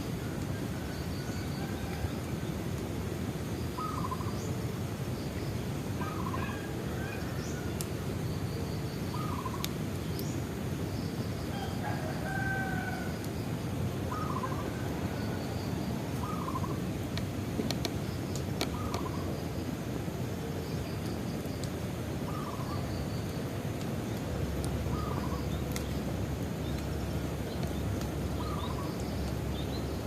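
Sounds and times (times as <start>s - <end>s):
bonfire rumbling: 0.0s - 30.0s
fire popping: 6.9s - 30.0s
bird warbling: 14.1s - 14.6s.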